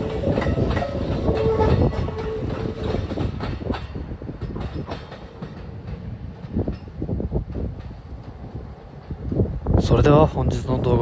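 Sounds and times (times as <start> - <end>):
electric train pulling away: 0.0 - 3.8
train wheels clicking over rail joints: 0.0 - 10.6.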